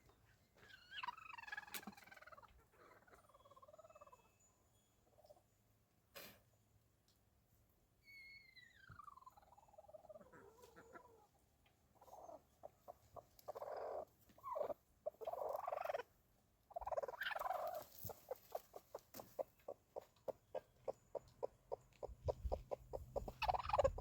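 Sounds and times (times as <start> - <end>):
hen clucking: 0.8 - 4.2, 8.9 - 24.0.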